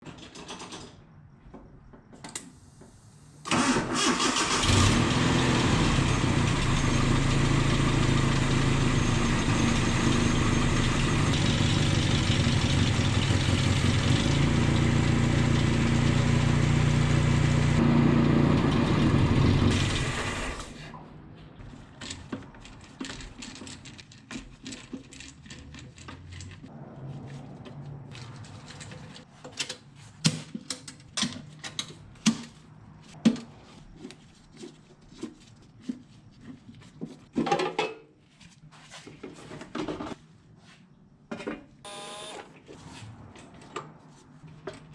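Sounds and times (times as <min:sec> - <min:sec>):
pickup engine running: 0:04.6 - 0:20.7.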